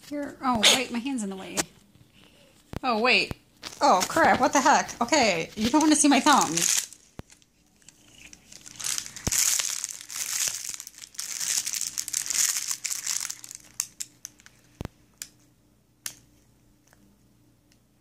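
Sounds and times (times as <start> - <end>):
crinkling rustling: 3.6 - 15.0.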